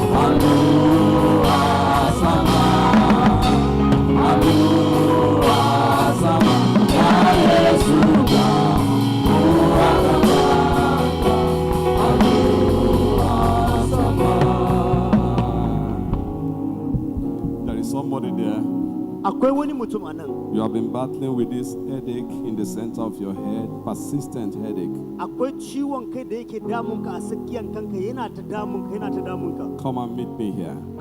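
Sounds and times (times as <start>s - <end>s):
band with drums: 0.0s - 17.8s
voices singing together: 0.0s - 30.7s.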